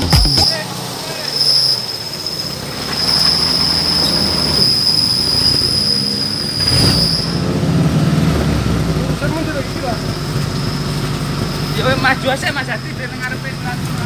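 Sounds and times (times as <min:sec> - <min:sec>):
high-pitched whine: 0:00.0 - 0:07.4
off-road vehicle engine revving: 0:00.0 - 0:14.0.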